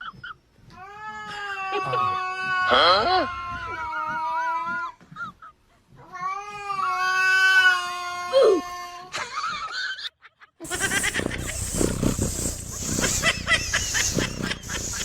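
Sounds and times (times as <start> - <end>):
short noisy burst: 10.6 - 15.0.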